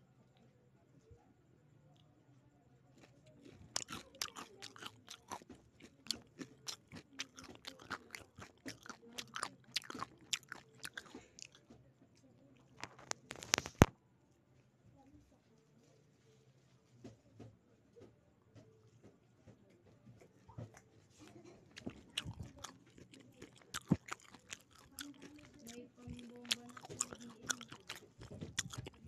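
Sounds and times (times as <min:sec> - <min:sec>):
crunching crispy chicken skin: 0:03.0 - 0:11.6, 0:21.8 - 0:29.0.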